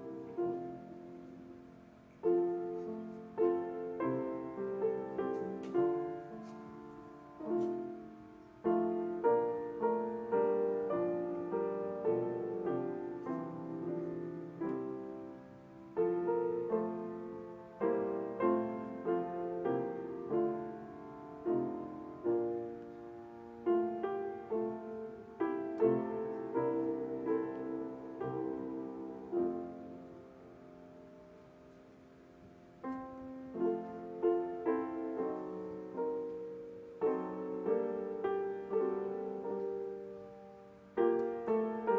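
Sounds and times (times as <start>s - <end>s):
slow solo piano chords: 0.0s - 41.9s.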